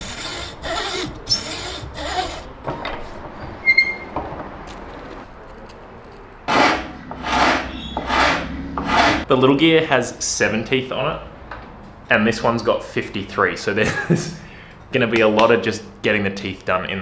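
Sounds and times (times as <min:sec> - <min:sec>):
hand file rasping on wood: 0:00.0 - 0:03.5, 0:06.5 - 0:09.3
high squeak: 0:00.0 - 0:04.2, 0:06.5 - 0:09.2.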